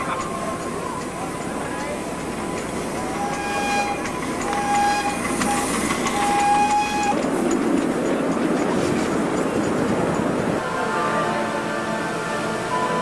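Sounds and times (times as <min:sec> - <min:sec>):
locomotive whistle blasts: 0:02.5 - 0:07.6.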